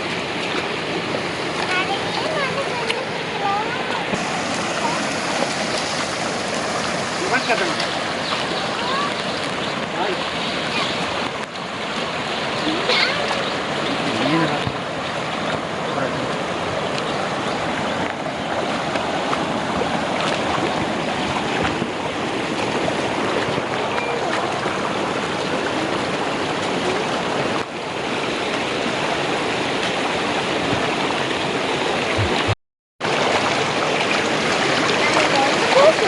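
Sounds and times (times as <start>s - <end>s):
water rushing: 0.0s - 36.0s.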